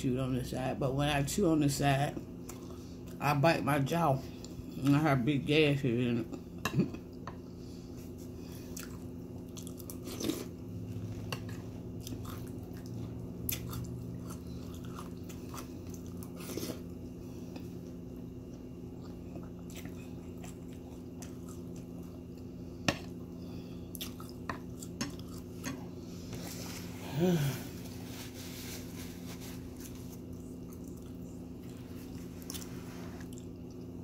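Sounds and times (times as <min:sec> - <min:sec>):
chewing cereal: 0:08.5 - 0:22.5, 0:23.9 - 0:25.7, 0:29.2 - 0:34.0.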